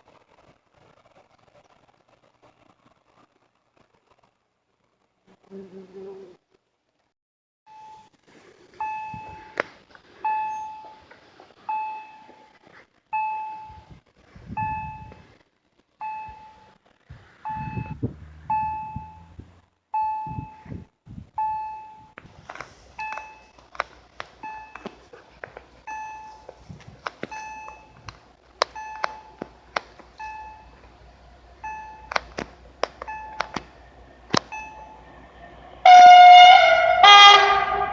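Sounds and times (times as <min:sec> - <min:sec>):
level crossing warning bell: 0:08.8 - 0:09.6, 0:10.2 - 0:11.1, 0:11.7 - 0:12.6, 0:13.2 - 0:13.9, 0:16.0 - 0:16.7, 0:17.4 - 0:19.3, 0:19.9 - 0:20.7, 0:21.4 - 0:22.2, 0:22.9 - 0:23.6, 0:24.4 - 0:25.0, 0:25.8 - 0:26.7, 0:27.3 - 0:28.1, 0:28.7 - 0:29.4, 0:30.2 - 0:32.2, 0:33.0 - 0:37.9
low rumbles: 0:13.7 - 0:37.9
sharp clicks: 0:32.0 - 0:34.5.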